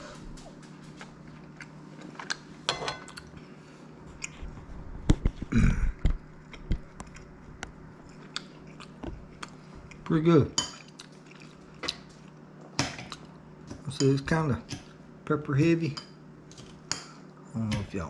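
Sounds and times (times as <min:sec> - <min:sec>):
person chewing steak: 0:00.4 - 0:04.7, 0:06.0 - 0:10.1, 0:10.7 - 0:13.6.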